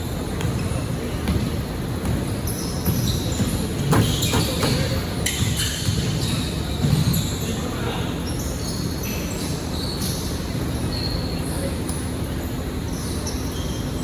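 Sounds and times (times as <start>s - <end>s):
basketball bouncing on court: 0.3s - 7.4s
sneakers squeaking on hardwood: 0.3s - 11.6s.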